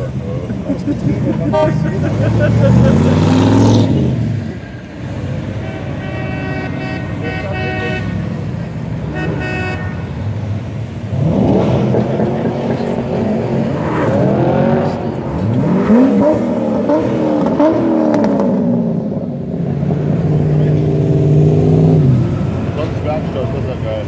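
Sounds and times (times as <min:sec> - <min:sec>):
muscle car engine revving: 0:01.8 - 0:04.5, 0:11.0 - 0:23.3.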